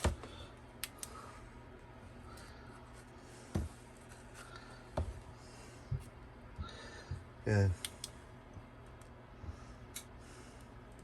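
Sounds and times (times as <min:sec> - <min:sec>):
soft taps and knocks: 0:03.5 - 0:03.8.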